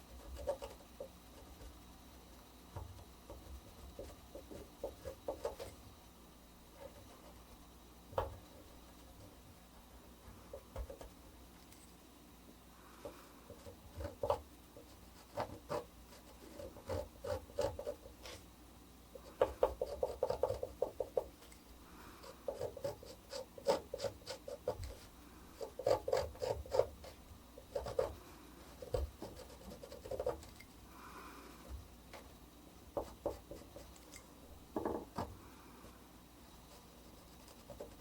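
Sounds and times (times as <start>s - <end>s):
etching needle scratching copper: 13.5s - 18.5s, 22.2s - 30.8s, 36.6s - 38.0s.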